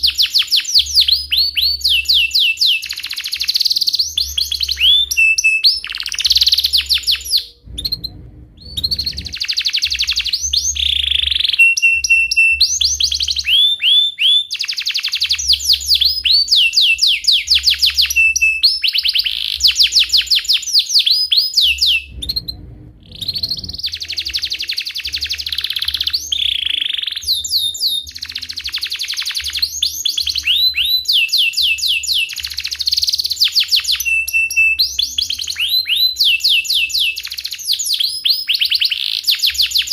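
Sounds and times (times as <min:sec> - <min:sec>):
canary trilling: 0:00.0 - 0:39.9.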